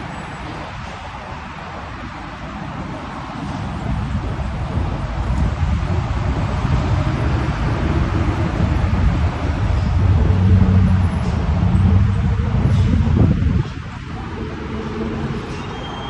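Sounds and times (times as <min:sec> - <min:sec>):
road traffic rumble: 0:00.0 - 0:16.0
deep engine hum: 0:05.8 - 0:15.5.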